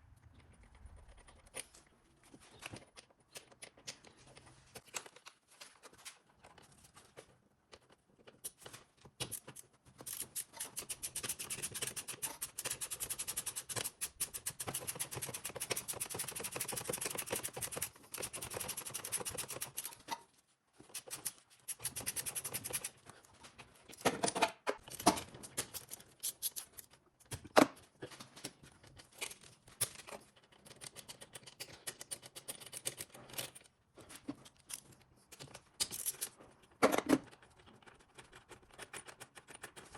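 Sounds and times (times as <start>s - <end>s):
rapid clicking and rattling: 10.0s - 20.0s.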